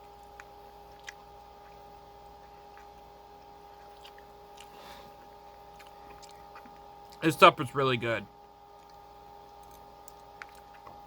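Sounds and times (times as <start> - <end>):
person chewing food: 0.0 - 7.2, 8.4 - 11.0
electrical hum: 0.0 - 11.0.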